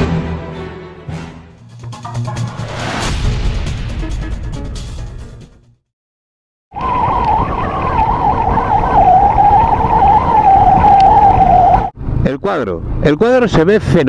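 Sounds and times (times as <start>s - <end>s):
music: 0.0s - 5.9s.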